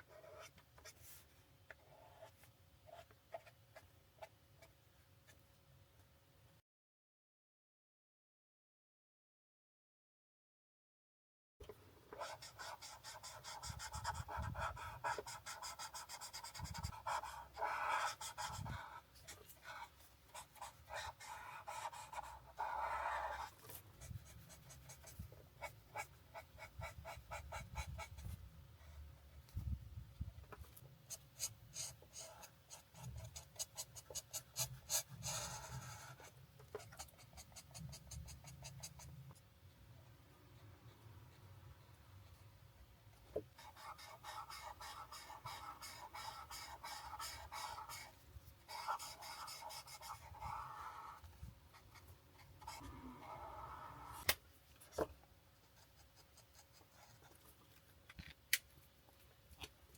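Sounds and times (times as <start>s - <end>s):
marker scratching on paper: 12.2s - 28.4s, 31.1s - 39.4s, 43.6s - 54.3s.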